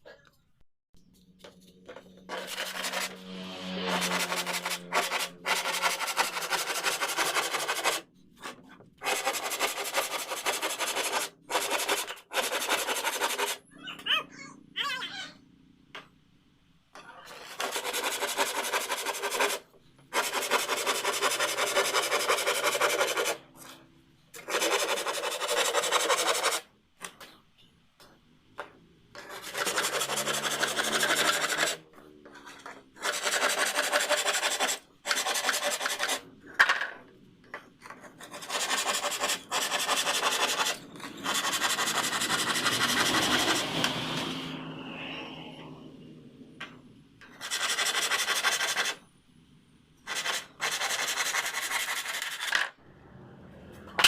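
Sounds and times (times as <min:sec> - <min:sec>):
abrasive tool rasping wood: 0:02.3 - 0:08.0, 0:17.4 - 0:19.6, 0:20.2 - 0:23.4, 0:29.2 - 0:31.8, 0:32.5 - 0:36.2, 0:38.2 - 0:44.0.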